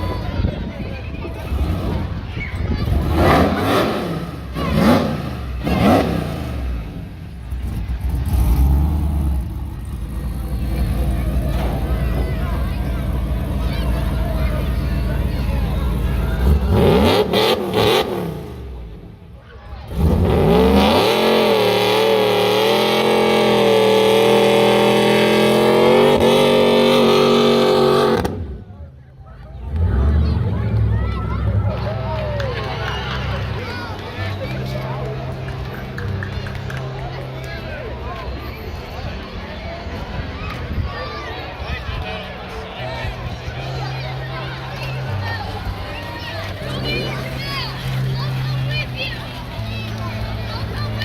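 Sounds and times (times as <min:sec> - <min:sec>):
car engine revving: 0:01.4 - 0:28.8, 0:44.1 - 0:51.0.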